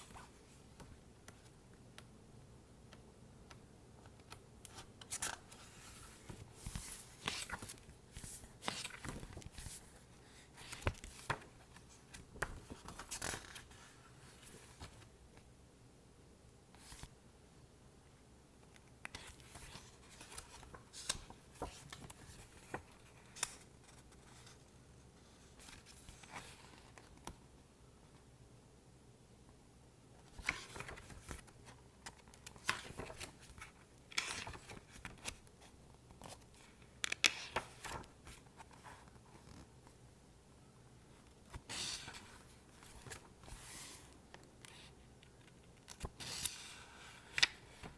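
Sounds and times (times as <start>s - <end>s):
fingers handling paper book: 2.9s - 15.1s, 18.6s - 24.6s, 30.2s - 40.0s, 41.1s - 47.9s.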